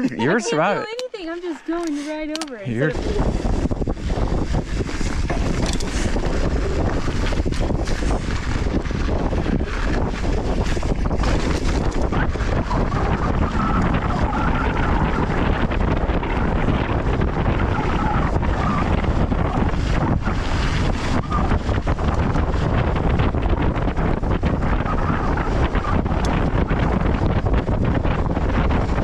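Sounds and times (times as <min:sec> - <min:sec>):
wind buffeting microphone: 0:00.0 - 0:29.0
bike knocks and rattles: 0:04.4 - 0:12.5.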